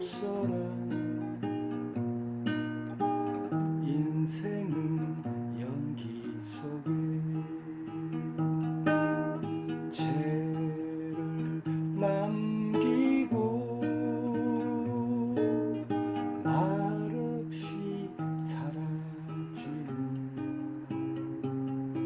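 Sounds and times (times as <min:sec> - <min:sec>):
sliding guitar melody: 0:00.0 - 0:22.0
strummed acoustic guitar chords: 0:00.0 - 0:22.0.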